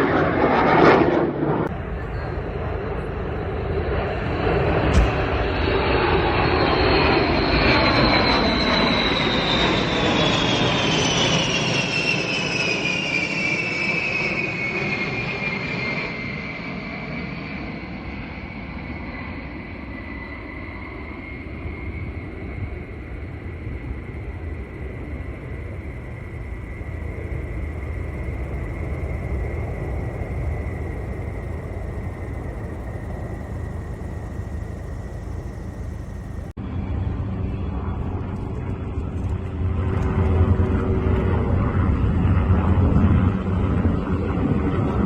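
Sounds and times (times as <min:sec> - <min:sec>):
low rumble: 0:00.0 - 0:08.0, 0:21.5 - 0:40.2
aircraft engine whine and rumble: 0:00.0 - 0:45.0.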